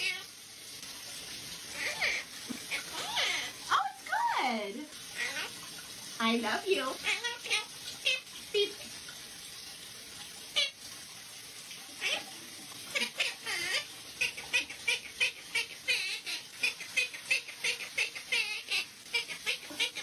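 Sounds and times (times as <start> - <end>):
parrot squeaking and chirping: 0.0 - 0.3, 1.7 - 3.8, 5.0 - 5.7, 6.9 - 8.3, 10.6 - 10.8, 12.0 - 12.3, 12.9 - 20.0.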